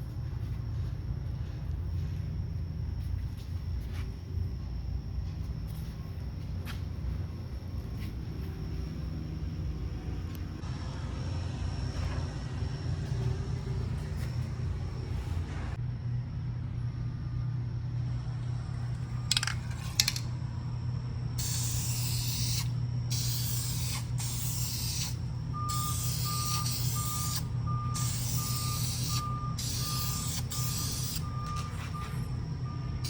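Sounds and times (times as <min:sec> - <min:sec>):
low hum: 0:00.0 - 0:33.0
sharp clicks: 0:19.3 - 0:20.3
spray can hissing: 0:21.4 - 0:31.2
high beep: 0:25.6 - 0:32.9.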